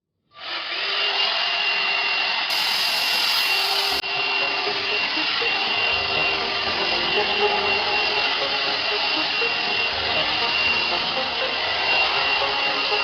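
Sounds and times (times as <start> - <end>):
hair dryer brush blowing: 2.5 - 7.0, 7.6 - 13.0.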